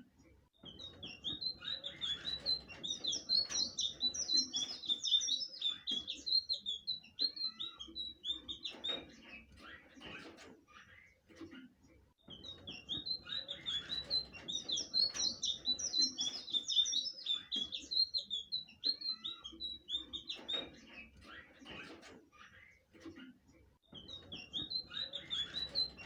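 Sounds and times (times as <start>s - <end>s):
bird chirps: 0.6s - 11.2s, 12.2s - 23.1s, 23.8s - 26.0s
bird singing warbled notes: 0.7s - 8.8s, 12.3s - 20.6s, 24.0s - 26.0s.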